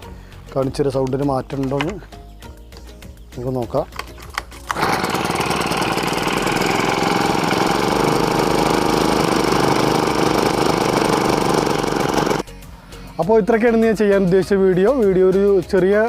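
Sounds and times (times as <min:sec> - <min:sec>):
brush cutter engine running: 0:04.6 - 0:12.5.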